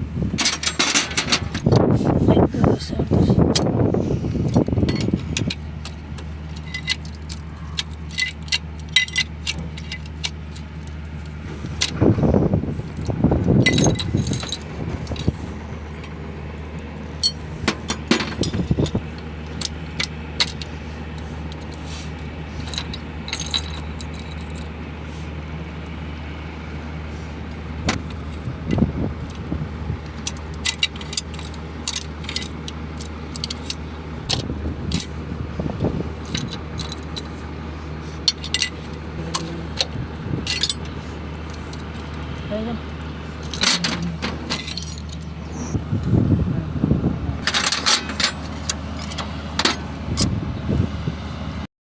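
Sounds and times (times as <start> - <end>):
steady low hum: 0.0 - 51.7
metal tools clinking and rattling: 0.4 - 1.8, 4.4 - 12.0, 12.8 - 16.2, 17.0 - 24.7, 27.5 - 45.7, 47.4 - 50.3.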